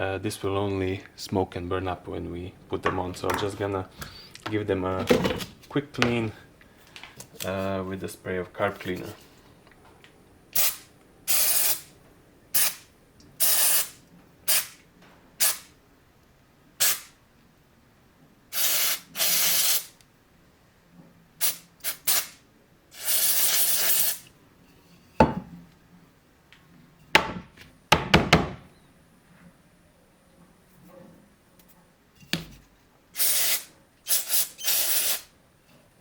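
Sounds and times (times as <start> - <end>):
aerosol spray hissing: 10.6 - 11.9, 12.6 - 14.8, 16.8 - 17.1, 18.6 - 19.9, 21.4 - 22.4, 23.0 - 24.2, 33.2 - 35.3
sharp knocks: 27.2 - 28.7.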